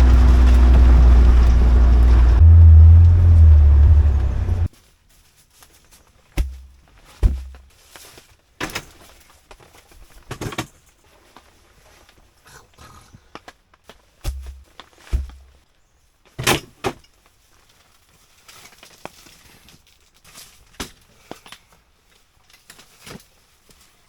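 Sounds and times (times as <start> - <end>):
vehicle engine running: 0.0 - 4.7
knocks and thumps: 6.4 - 7.6.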